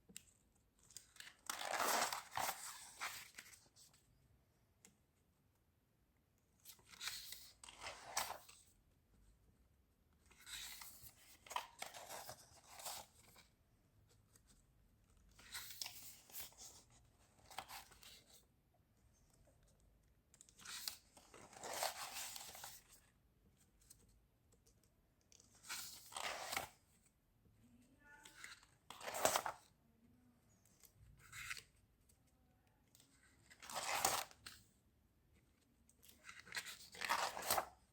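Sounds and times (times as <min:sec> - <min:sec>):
paper rustling: 0:36.0 - 0:37.7.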